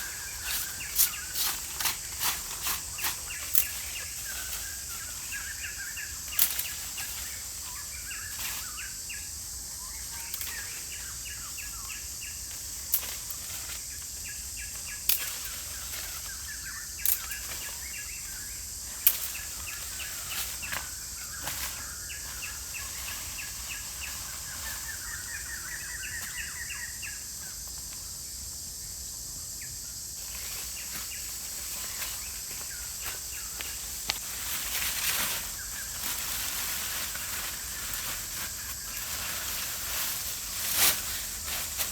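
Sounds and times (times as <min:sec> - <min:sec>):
birds chirping: 0:00.0 - 0:12.6, 0:14.0 - 0:27.7
insect hiss: 0:00.0 - 0:41.9.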